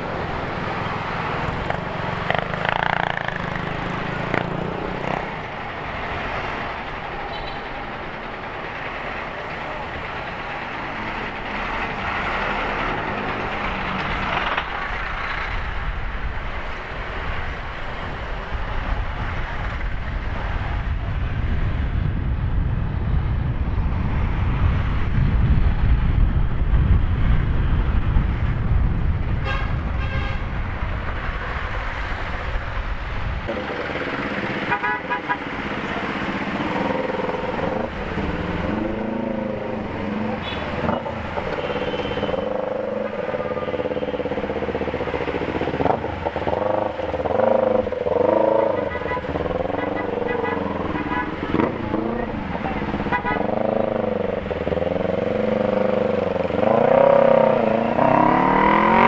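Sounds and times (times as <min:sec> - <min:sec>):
road traffic: 0:00.0 - 0:59.0
wind rushing over microphone: 0:15.0 - 0:34.4
vehicle horn tooting: 0:29.4 - 0:30.5, 0:34.7 - 0:35.4, 0:41.6 - 0:42.5, 0:53.1 - 0:53.6.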